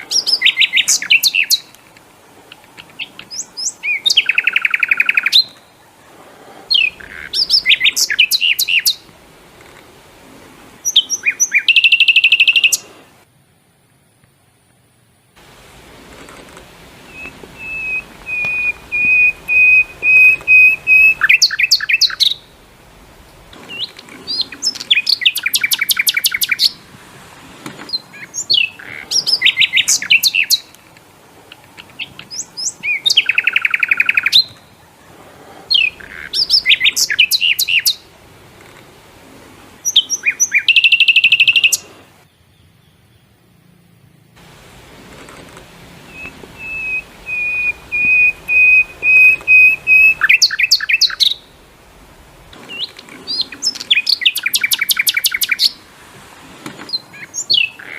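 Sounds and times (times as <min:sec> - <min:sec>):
songbird trills and whistles: 0:00.0 - 0:01.8, 0:02.8 - 0:05.8, 0:06.7 - 0:09.1, 0:10.8 - 0:12.9, 0:17.0 - 0:22.6, 0:23.6 - 0:26.8, 0:27.9 - 0:30.7, 0:31.9 - 0:34.7, 0:35.7 - 0:38.0, 0:39.8 - 0:41.9, 0:46.1 - 0:51.6, 0:52.7 - 0:55.8, 0:56.9 - 0:57.9.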